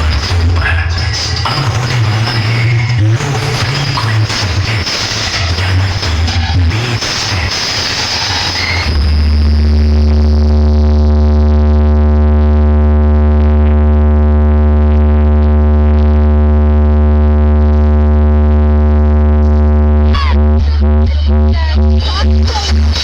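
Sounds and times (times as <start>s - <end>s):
electronic music with sliding tones: 0.0s - 10.8s
deep bass tone through speakers: 0.0s - 23.0s.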